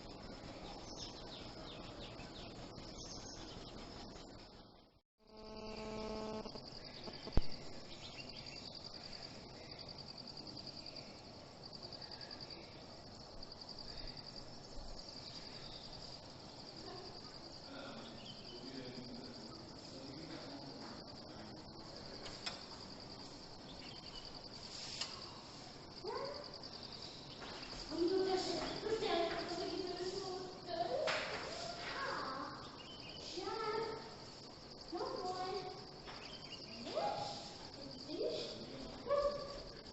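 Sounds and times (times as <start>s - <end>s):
crickets trilling: 0.0s - 39.9s
sharp click: 22.2s - 22.7s.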